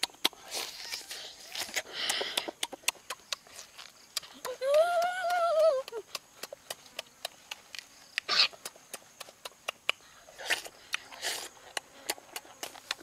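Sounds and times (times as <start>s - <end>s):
child chewing and lip-smacking: 0.0s - 13.0s
hummed mmm: 4.1s - 7.4s.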